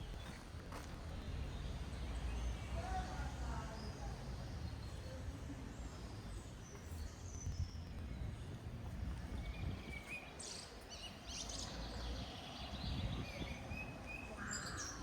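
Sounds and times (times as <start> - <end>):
small birds chirping: 1.2 - 15.0
wind rumble on microphone: 7.0 - 10.4, 11.6 - 14.4.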